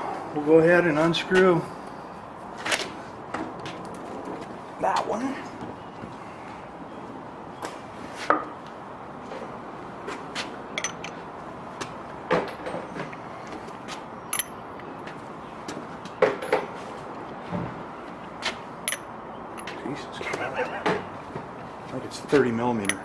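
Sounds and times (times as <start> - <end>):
hand tools clinking on metal: 10.8 - 11.2, 14.3 - 14.6, 18.9 - 19.9, 22.7 - 23.0.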